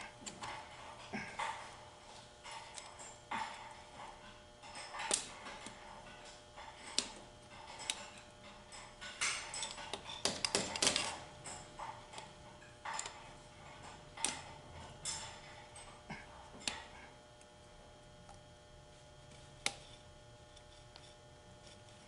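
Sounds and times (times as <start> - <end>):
metal parts clicking and scraping: 2.4 - 17.0.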